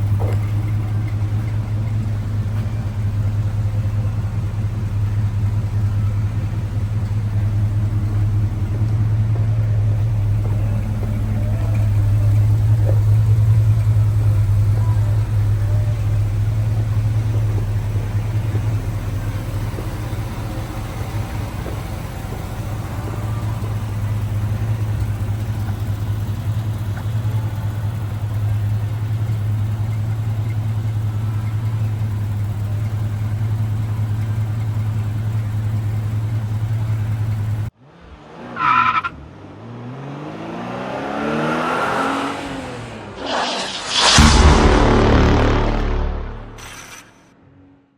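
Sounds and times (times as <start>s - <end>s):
car engine idling: 0.0s - 37.8s
engine revving up and down: 37.8s - 47.1s
loud burst: 42.8s - 47.2s.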